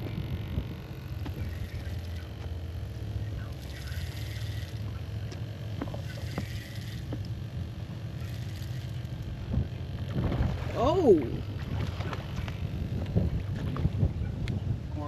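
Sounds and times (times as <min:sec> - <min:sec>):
wind on microphone: 0:09.4 - 0:15.0.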